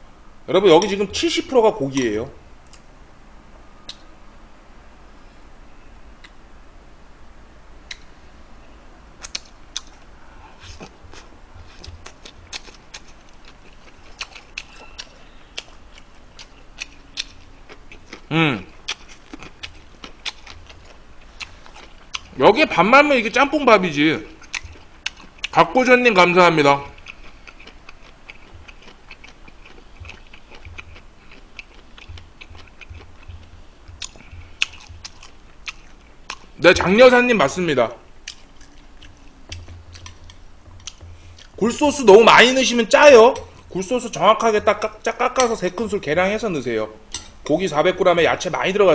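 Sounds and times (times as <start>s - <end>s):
wet mouth clicks: 7.9s - 8.1s, 9.2s - 10.1s, 27.0s - 36.6s
close-miked chewing: 9.2s - 22.8s, 24.3s - 46.0s.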